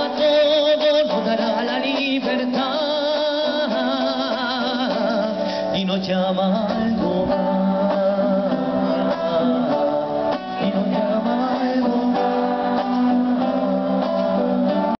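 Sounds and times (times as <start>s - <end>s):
strummed acoustic guitar: 0.0s - 15.0s
people singing along: 6.9s - 15.0s.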